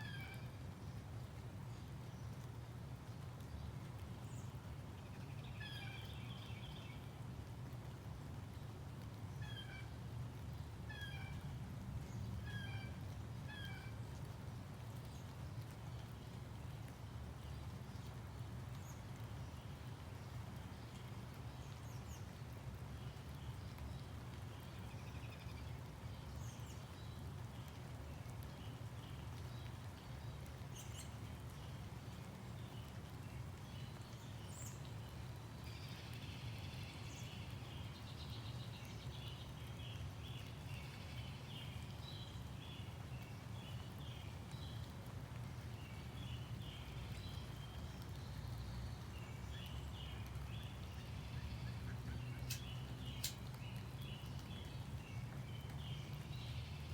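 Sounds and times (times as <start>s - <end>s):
birds chirping: 46.0s - 56.9s.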